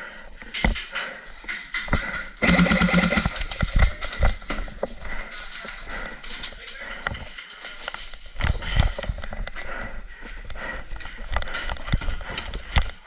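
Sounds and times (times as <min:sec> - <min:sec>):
airsoft guns firing: 0:02.4 - 0:03.6.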